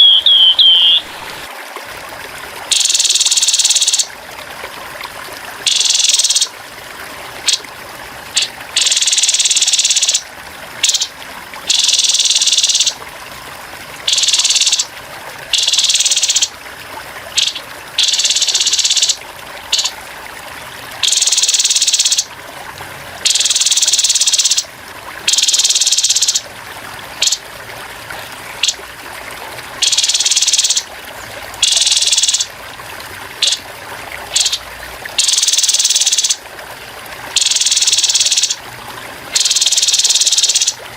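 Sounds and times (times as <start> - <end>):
trickle of running water: 0.0 - 40.9
bird harsh rattling calls: 10.8 - 11.1, 17.4 - 19.9, 34.3 - 34.6.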